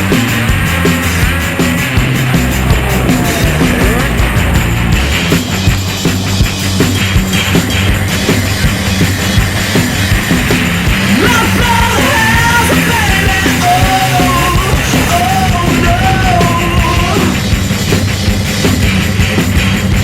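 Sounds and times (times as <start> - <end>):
hard rock music: 0.0 - 20.0
pounding drum beat: 0.0 - 20.0
shouted vocals: 2.0 - 5.3, 11.0 - 17.4.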